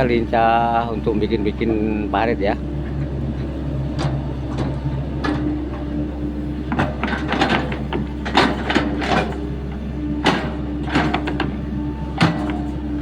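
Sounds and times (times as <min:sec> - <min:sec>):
excavator engine running: 0:00.0 - 0:13.0
bucket clanks and knocks: 0:06.7 - 0:09.6, 0:10.2 - 0:13.0.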